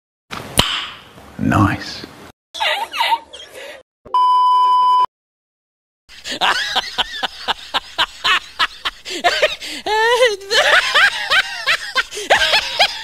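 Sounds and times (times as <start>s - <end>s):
censor bleep tone: 4.1s - 5.1s.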